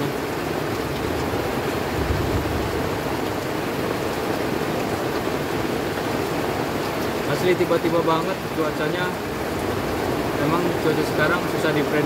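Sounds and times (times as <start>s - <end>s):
heavy rain on a tent: 0.0s - 12.0s.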